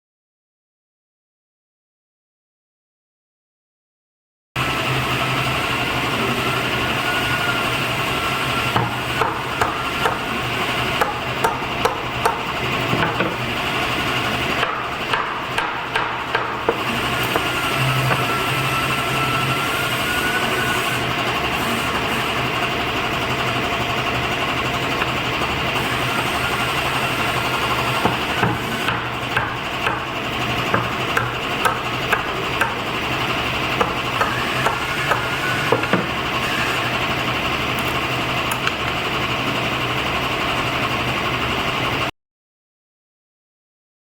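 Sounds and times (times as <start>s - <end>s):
woodworking machine humming: 4.6s - 42.1s
sharp knocks: 28.0s - 30.1s, 30.7s - 32.8s.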